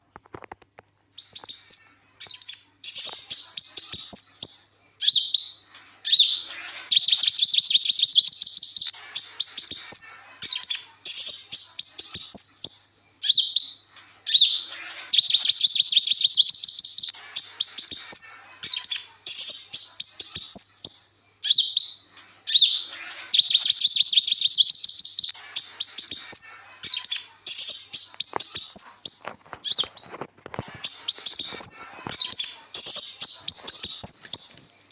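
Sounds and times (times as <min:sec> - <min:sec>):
bird singing rapid chirps: 0:01.2 - 0:34.9
buzzing bird trill: 0:29.7 - 0:34.6.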